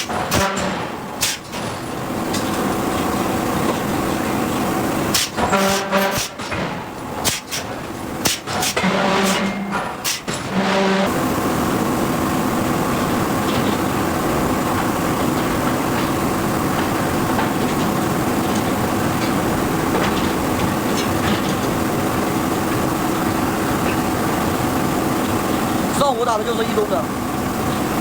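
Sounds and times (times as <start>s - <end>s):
forging hammer blows on steel: 0.0s - 1.6s, 5.1s - 11.2s
loud machinery noise: 0.0s - 28.0s
short pitched machine sounds: 4.5s - 6.7s, 7.3s - 16.5s.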